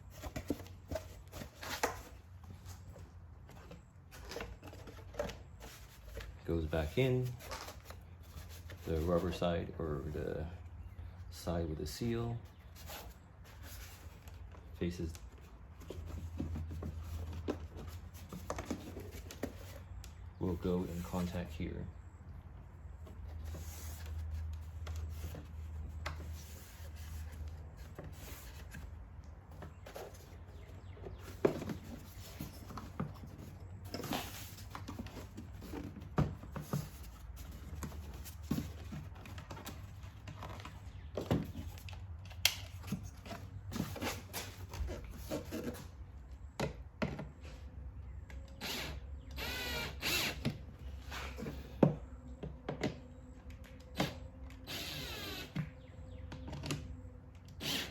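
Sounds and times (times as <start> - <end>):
plastic parts clicking and scraping: 0.1 - 6.4.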